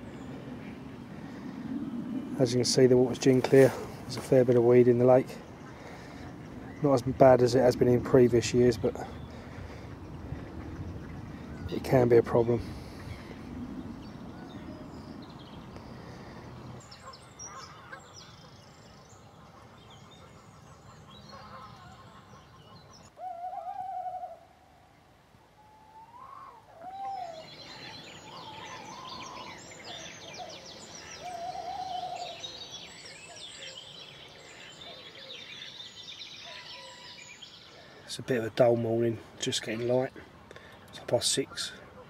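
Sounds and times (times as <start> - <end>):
songbirds chirping: 0.0 - 42.0
waterfowl calling: 19.4 - 24.5, 25.9 - 35.8.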